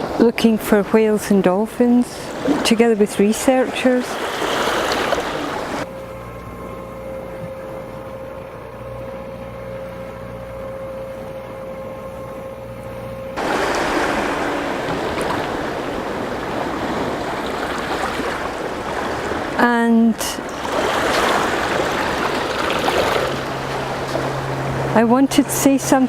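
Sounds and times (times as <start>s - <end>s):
sea surf rushing: 0.0s - 5.9s, 13.4s - 26.0s
low motor hum with whine: 0.0s - 26.0s.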